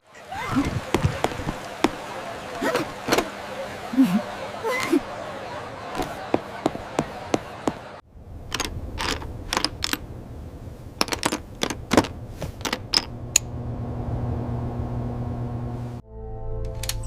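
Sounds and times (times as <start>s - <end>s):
low rumbling background: 8.1s - 16.0s
steady low drone: 13.1s - 16.9s.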